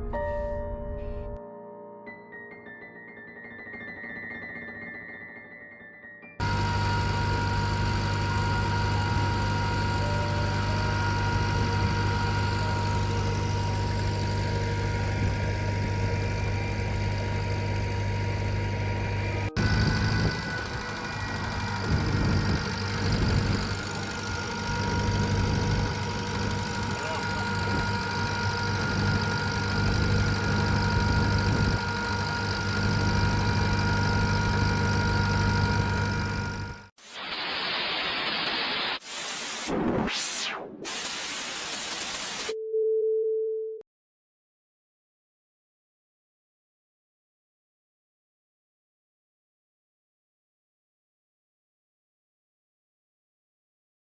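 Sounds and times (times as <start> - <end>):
tractor engine running: 6.4 - 36.9
thin steady whine: 6.4 - 42.5.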